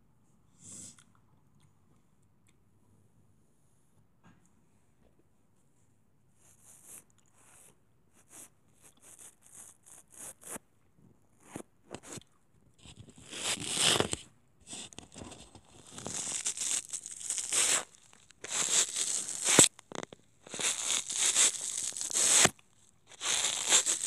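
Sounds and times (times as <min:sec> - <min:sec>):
crinkling handling noises: 0:12.8 - 0:24.0.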